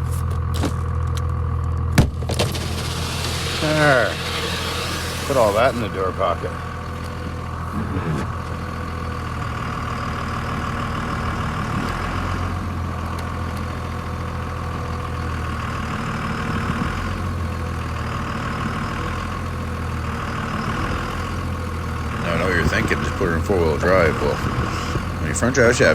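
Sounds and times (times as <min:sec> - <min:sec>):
truck engine idling: 0:00.0 - 0:25.9.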